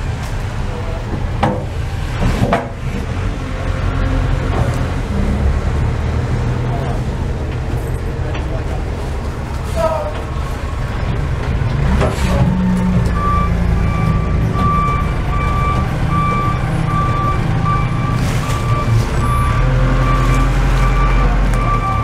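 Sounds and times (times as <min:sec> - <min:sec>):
diesel engine rumble: 0:00.0 - 0:22.0
truck reversing alarm beeping: 0:12.5 - 0:22.0.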